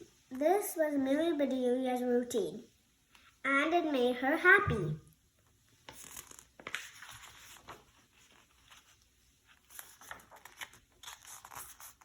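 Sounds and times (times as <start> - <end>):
book pages rustling: 5.8 - 12.0.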